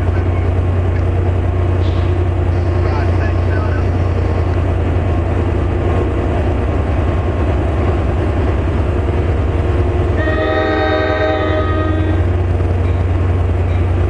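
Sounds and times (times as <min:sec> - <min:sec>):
train rumbling past: 0:00.0 - 0:14.0
train horn chord: 0:10.1 - 0:12.4.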